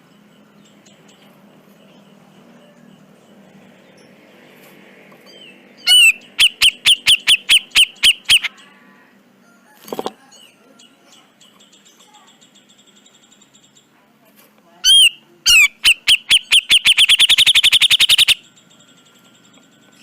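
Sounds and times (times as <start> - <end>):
bird singing repeated notes: 5.3 - 8.6, 14.8 - 20.0.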